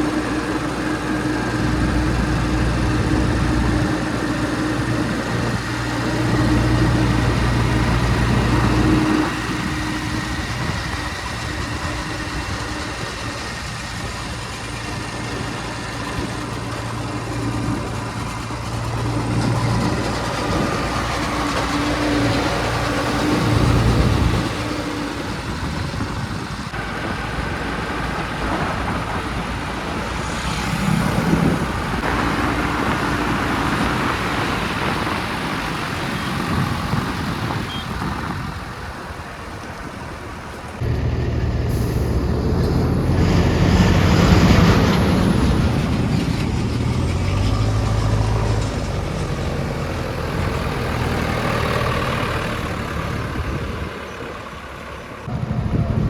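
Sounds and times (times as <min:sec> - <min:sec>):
diesel engine of backhoe loader: 0:00.0 - 0:56.0.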